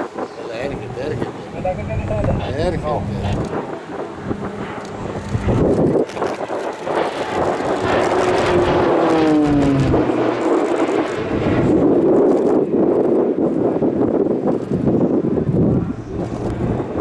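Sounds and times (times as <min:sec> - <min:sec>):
aircraft engine flying past: 0:00.0 - 0:12.8.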